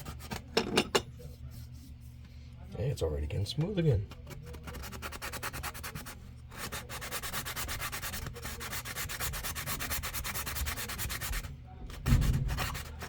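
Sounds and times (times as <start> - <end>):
sanding wood by hand: 4.7 - 13.0.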